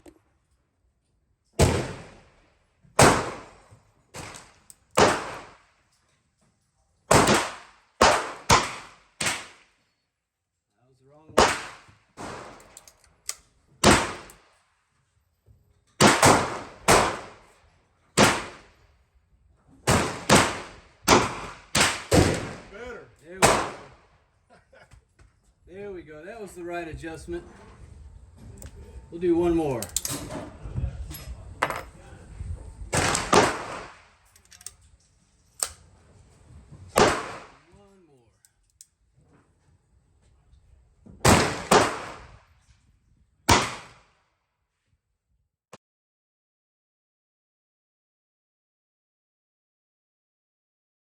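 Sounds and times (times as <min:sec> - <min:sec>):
gunshot: 0:01.6 - 0:02.3, 0:03.0 - 0:03.6, 0:04.2 - 0:05.6, 0:07.1 - 0:09.7, 0:11.4 - 0:12.6, 0:13.8 - 0:14.3, 0:16.0 - 0:17.4, 0:18.2 - 0:18.7, 0:19.9 - 0:22.8, 0:23.4 - 0:24.0, 0:32.9 - 0:34.1, 0:36.9 - 0:37.7, 0:41.2 - 0:42.5, 0:43.5 - 0:44.1
gunshots with echo: 0:07.1 - 0:09.6, 0:11.4 - 0:12.6, 0:23.4 - 0:23.9, 0:32.9 - 0:34.0, 0:37.0 - 0:37.6, 0:41.3 - 0:42.3.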